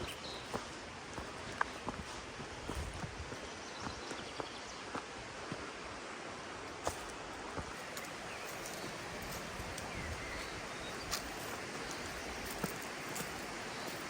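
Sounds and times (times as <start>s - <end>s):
steady rustling hiss: 5.1s - 14.0s.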